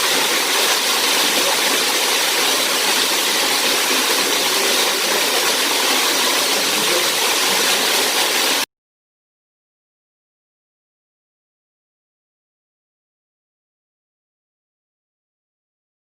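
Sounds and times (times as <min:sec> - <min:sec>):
waterfall pouring into pool: 0:00.0 - 0:08.7.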